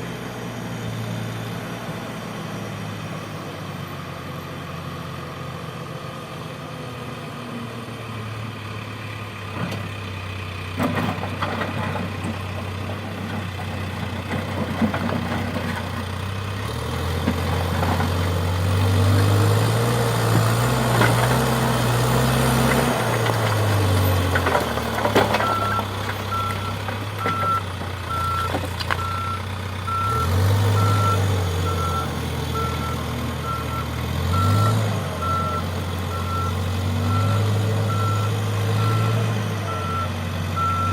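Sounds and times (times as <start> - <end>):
diesel engine revving: 0.0 - 40.9
knocks and clanks: 22.7 - 27.6
reversing alarm beeping: 25.4 - 40.9.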